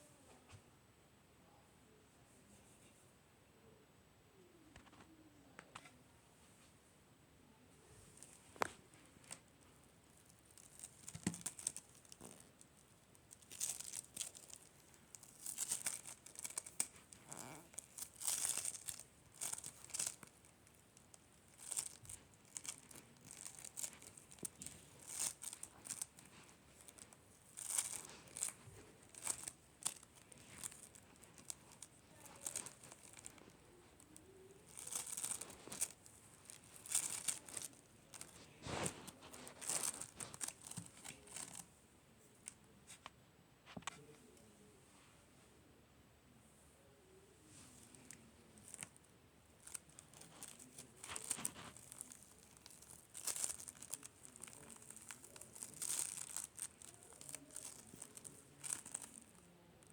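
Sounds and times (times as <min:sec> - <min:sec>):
slime crackling: 0:08.2 - 0:41.7, 0:49.6 - 0:59.9.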